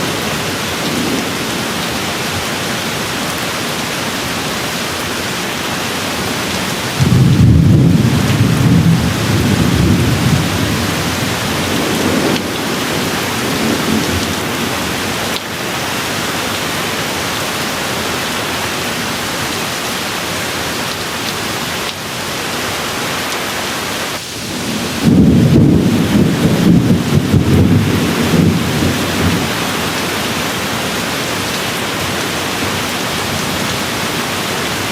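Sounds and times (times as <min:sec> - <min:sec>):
steady rainfall: 0:00.0 - 0:34.9
rolling thunder: 0:06.9 - 0:15.2, 0:24.3 - 0:30.0.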